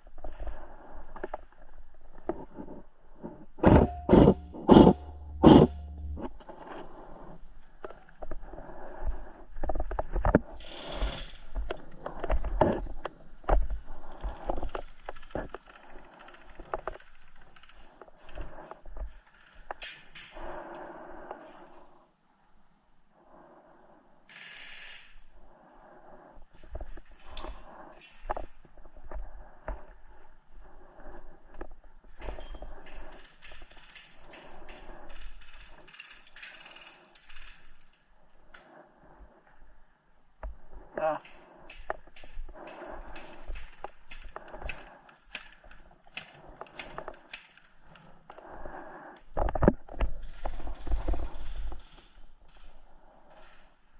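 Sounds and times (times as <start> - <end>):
low bumping rumble: 3.6 - 6.4.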